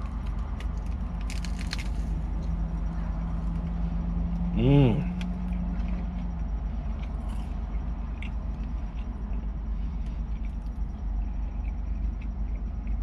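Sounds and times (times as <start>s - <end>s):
low rumble inside a car: 0.0s - 13.0s
man chewing: 4.8s - 13.0s.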